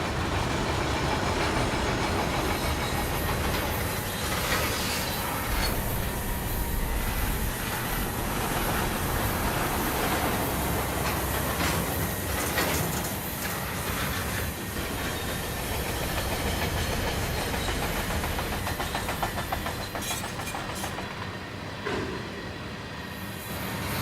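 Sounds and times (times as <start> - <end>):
rumble of wheels on rail: 0.0 - 24.0
wheels clicking over rail joints: 8.8 - 21.5.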